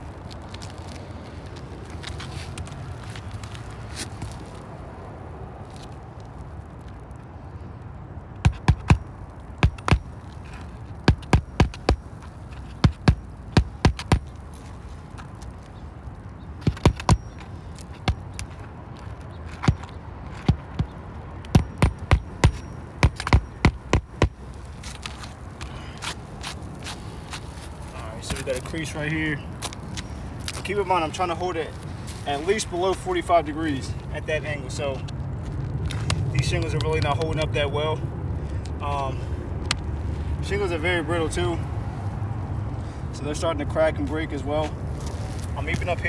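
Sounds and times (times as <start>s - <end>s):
hand hammer striking: 8.4s - 14.4s, 16.6s - 18.6s, 19.5s - 24.4s.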